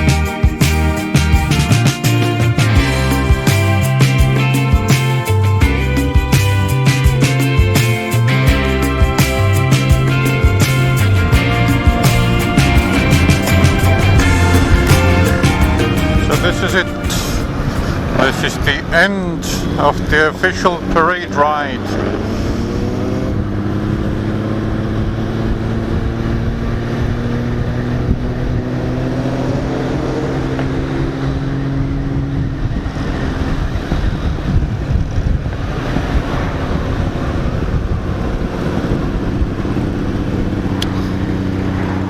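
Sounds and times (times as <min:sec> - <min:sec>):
motorcycle engine running: 0:00.0 - 0:18.8, 0:36.9 - 0:42.0
wind noise: 0:00.0 - 0:20.6, 0:25.2 - 0:42.0.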